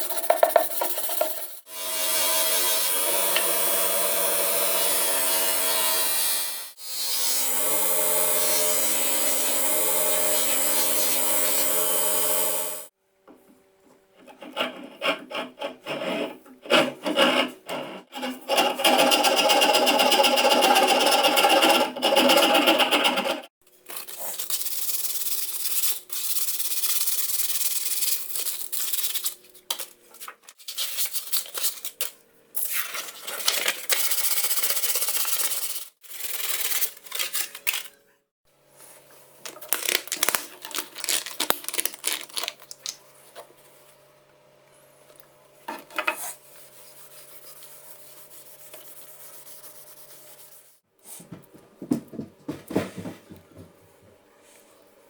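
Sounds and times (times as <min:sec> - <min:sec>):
rubbing and rasping strokes: 0:46.1 - 0:50.8.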